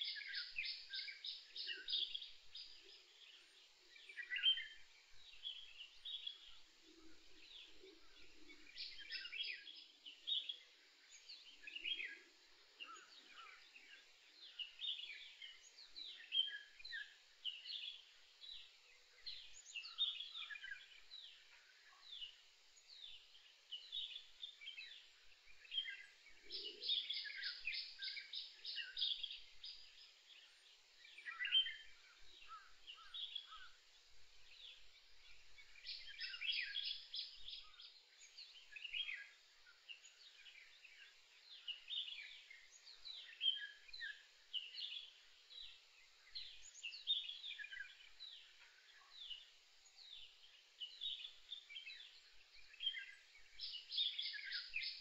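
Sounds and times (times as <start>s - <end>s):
soft lower bird calls: 0.0s - 55.0s
birds chirping and whistling: 31.1s - 33.7s, 35.6s - 45.7s, 50.1s - 55.0s.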